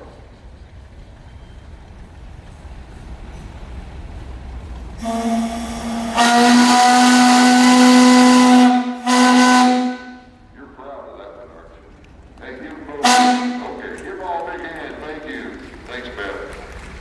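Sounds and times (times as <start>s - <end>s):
steam whistle blast: 5.0s - 10.3s, 13.0s - 13.8s.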